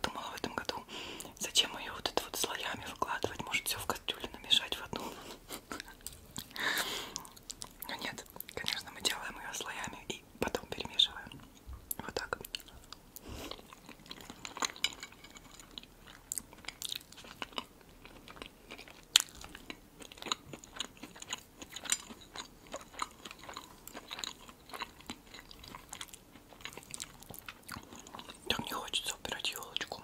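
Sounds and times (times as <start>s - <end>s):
food being chewed: 2.0s - 30.0s.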